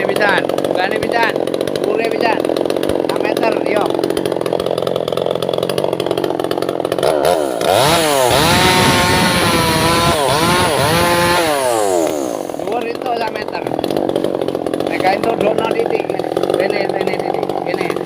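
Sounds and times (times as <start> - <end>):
chainsaw revving and cutting wood: 0.0 - 18.0.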